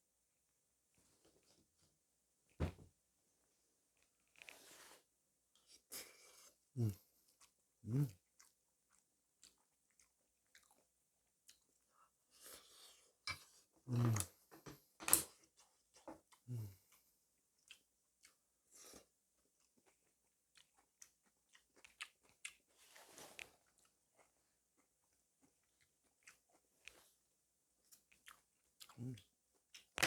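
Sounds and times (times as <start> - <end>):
person chewing food: 5.5 - 27.2, 27.9 - 30.0.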